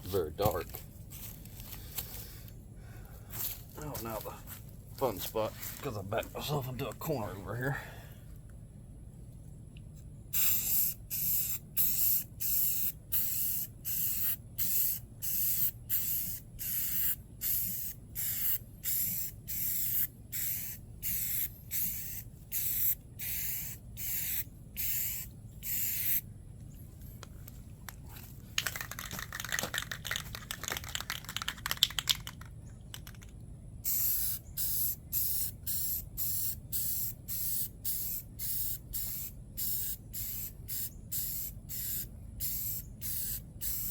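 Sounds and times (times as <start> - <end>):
spray paint hissing bursts: 10.3 - 26.2, 33.8 - 43.9
spray can rattling: 10.4 - 26.2, 28.6 - 43.9.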